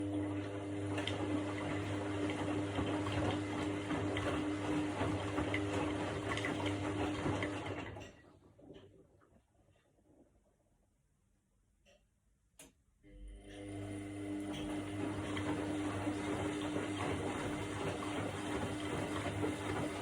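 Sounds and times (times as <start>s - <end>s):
washing machine motor hum: 0.0s - 9.2s, 13.0s - 20.0s
water churning and sloshing: 0.4s - 8.9s, 14.5s - 20.0s.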